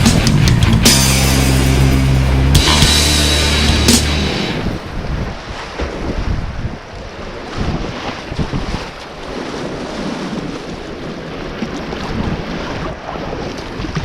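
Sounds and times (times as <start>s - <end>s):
rushing river water: 0.0s - 14.0s
wind buffeting microphone: 4.3s - 14.0s.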